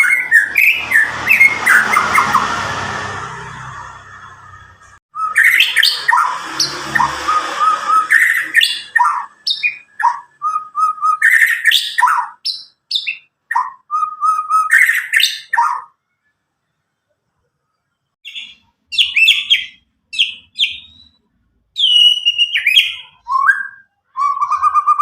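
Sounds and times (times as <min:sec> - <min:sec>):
bird singing whistled phrases: 0:00.0 - 0:02.4, 0:05.1 - 0:15.9, 0:18.2 - 0:21.2, 0:21.8 - 0:25.0.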